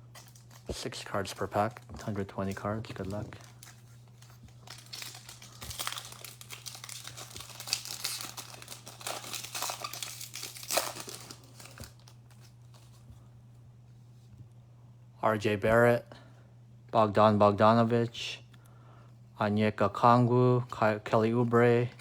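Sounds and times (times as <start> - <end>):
wrapper ripping: 0.0 - 12.8
plastic wrappers crinkling: 0.0 - 13.0.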